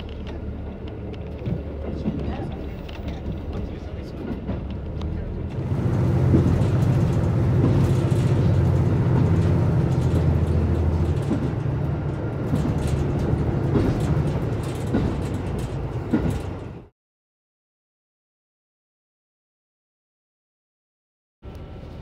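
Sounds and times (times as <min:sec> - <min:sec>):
railcar engine drone: 0:00.0 - 0:16.9, 0:21.4 - 0:22.0
wheels clacking over rail joints: 0:00.0 - 0:16.9.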